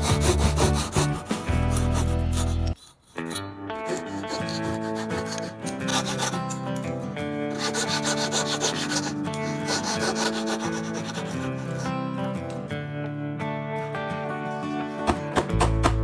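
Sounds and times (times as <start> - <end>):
wood sanding by hand: 0.0 - 6.6, 7.5 - 12.0
background music with sustained notes: 0.0 - 16.0.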